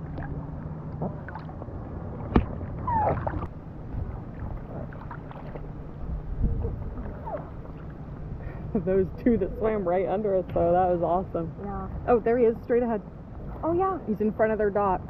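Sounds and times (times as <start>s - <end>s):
water sloshing around kayak: 0.0s - 9.8s, 13.1s - 14.5s.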